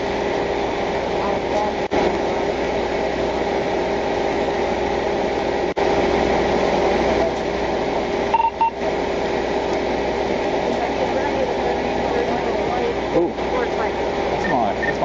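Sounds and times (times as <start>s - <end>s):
vehicle idling hum: 0.0s - 15.0s
short electronic beeps: 8.3s - 8.8s, 14.4s - 15.0s.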